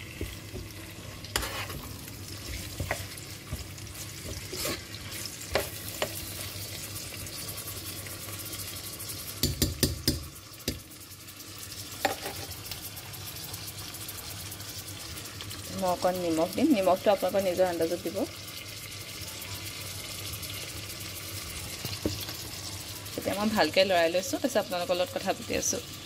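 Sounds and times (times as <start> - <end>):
chicken sizzling in hot oil: 0.0 - 26.0
metal spoon scraping pot: 1.2 - 3.1, 4.2 - 6.2, 12.0 - 12.5.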